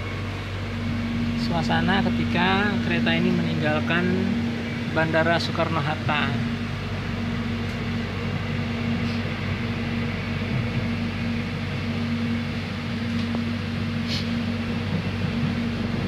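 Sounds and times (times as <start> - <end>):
train cabin hum and rumble: 0.0 - 16.0.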